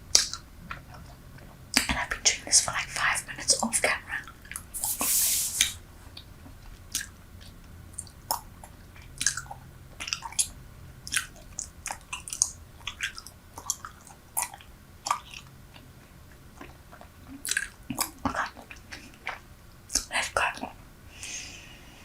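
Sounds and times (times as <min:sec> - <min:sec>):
bubble gum chewing smacks: 0:06.8 - 0:20.2.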